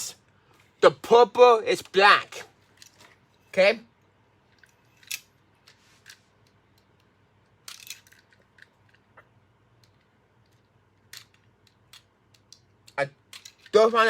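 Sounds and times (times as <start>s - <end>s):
small clicks of handled parts: 2.7s - 3.2s, 4.5s - 13.8s.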